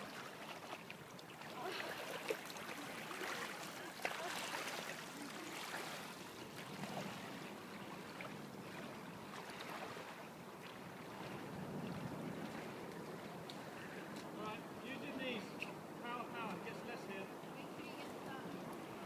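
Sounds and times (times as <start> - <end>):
water sloshing and splashing: 0.0 - 14.6.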